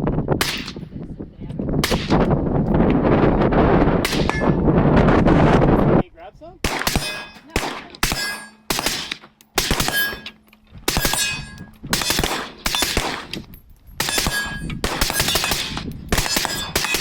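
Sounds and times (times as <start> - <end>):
rifle shots echoing: 1.8 - 2.2, 4.0 - 4.6, 6.6 - 17.0
metallic ring: 8.2 - 8.7, 9.9 - 13.0.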